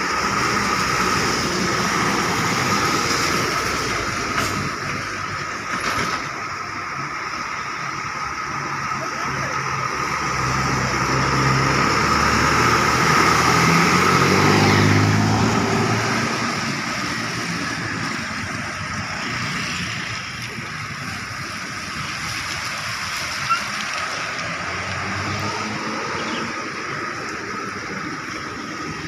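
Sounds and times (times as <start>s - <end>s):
rain and tyres hissing: 0.0s - 29.0s
vehicle engine passing: 8.9s - 20.2s, 23.8s - 29.0s.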